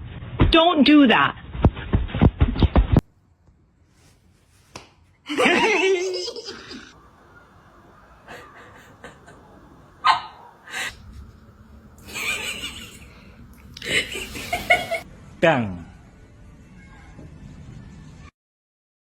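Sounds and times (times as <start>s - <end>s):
person laughing: 5.3s - 6.9s, 8.2s - 9.7s, 12.0s - 15.0s.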